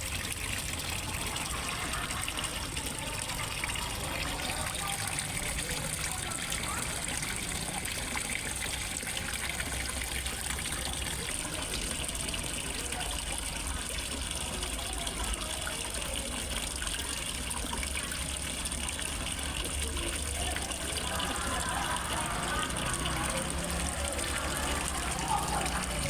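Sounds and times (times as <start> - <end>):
small waterfall splashing into pond: 0.0 - 26.0.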